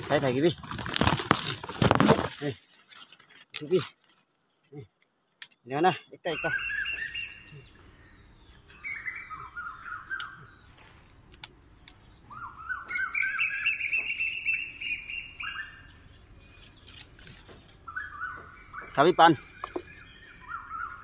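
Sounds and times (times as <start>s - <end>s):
bird singing rising chirps: 6.0s - 21.0s.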